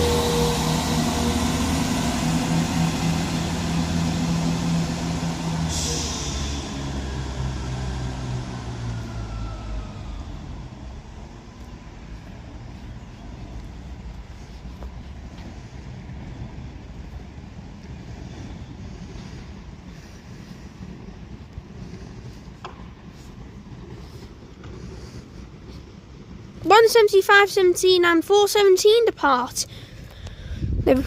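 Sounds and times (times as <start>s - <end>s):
diesel train engines pulling away: 0.0s - 31.0s
air hiss: 5.6s - 7.0s.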